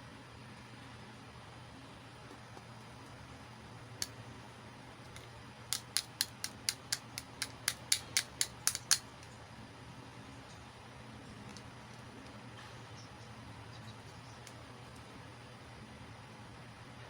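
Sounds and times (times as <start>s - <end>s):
toy pieces clicking: 5.1s - 9.1s.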